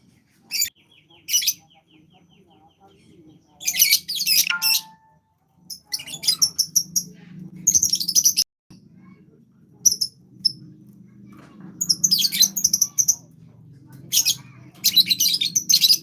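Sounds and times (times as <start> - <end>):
songbird chirping: 0.5 - 6.7.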